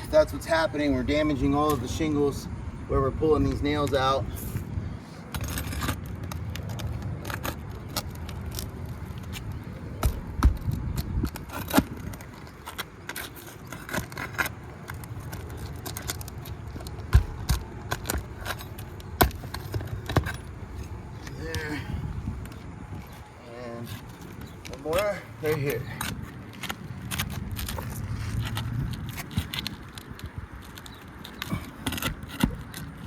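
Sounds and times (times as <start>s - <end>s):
steady low rumble: 0.0s - 33.0s
shingles scraping and crackling: 5.3s - 33.0s.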